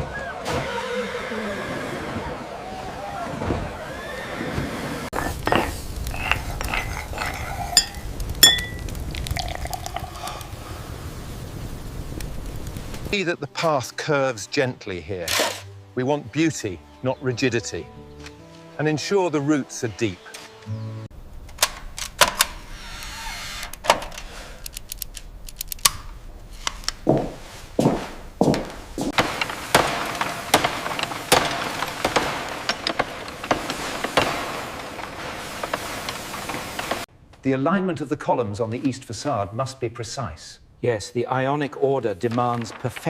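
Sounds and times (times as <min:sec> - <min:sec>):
tableware clinking and clattering: 0:05.2 - 0:09.8
sharp ringing clinks: 0:07.8 - 0:08.8.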